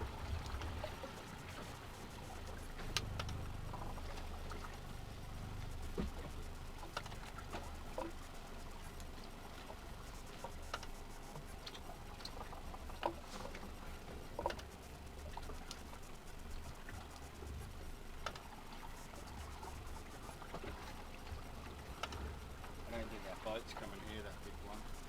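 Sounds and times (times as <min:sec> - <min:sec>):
steady low rumble: 0:00.0 - 0:10.4
light clicks and knocks: 0:21.9 - 0:22.4.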